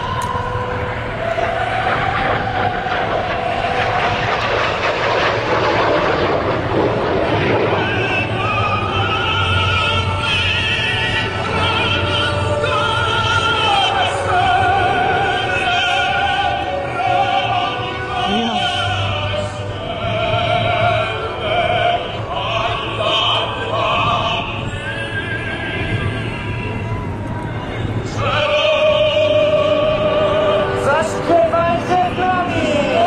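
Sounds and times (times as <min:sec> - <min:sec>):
operatic singing with vibrato: 0:07.0 - 0:33.0.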